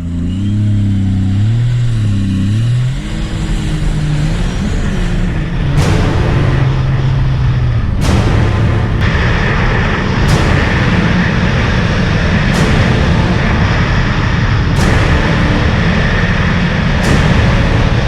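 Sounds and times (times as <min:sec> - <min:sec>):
sharp slap: 0:05.8 - 0:18.0.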